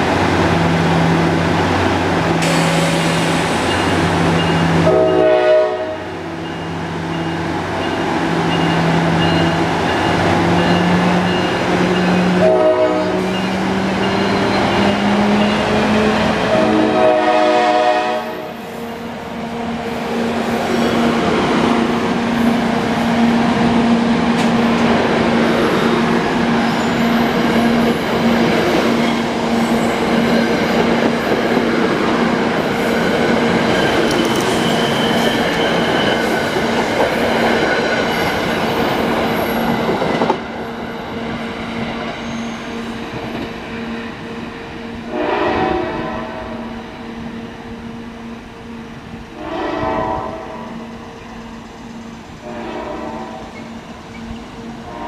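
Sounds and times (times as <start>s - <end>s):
train wheels rumbling on rails: 0.0s - 55.0s
train horn: 4.8s - 6.2s, 12.2s - 13.4s, 16.0s - 18.6s, 44.8s - 48.8s, 49.4s - 51.0s, 52.4s - 53.8s, 54.6s - 55.0s.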